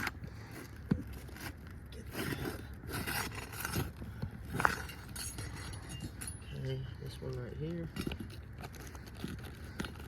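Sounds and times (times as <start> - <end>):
scraping and rustling of prying: 0.0 - 10.0.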